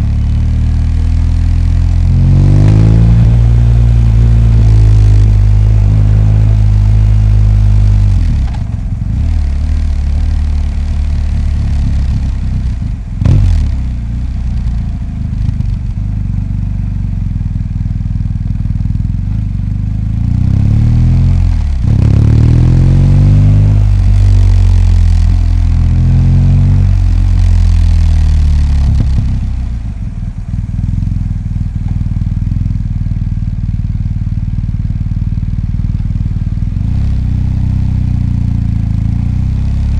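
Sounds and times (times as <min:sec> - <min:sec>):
engine revving: 0:00.0 - 0:15.8, 0:20.1 - 0:29.9
motorcycle engine running: 0:00.0 - 0:39.9.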